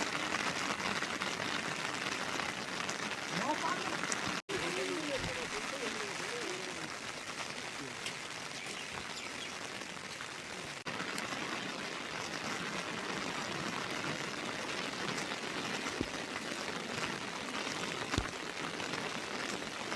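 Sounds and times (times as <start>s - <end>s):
heavy rain: 0.0s - 19.9s.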